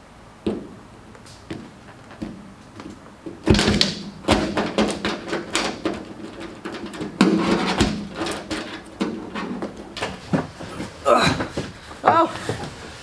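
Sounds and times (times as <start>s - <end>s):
knocks and rattles on car body: 1.5s - 10.8s.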